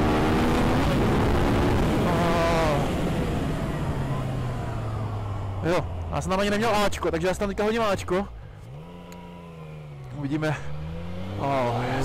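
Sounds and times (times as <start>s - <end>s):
motorcycle engine under throttle: 8.5s - 12.0s.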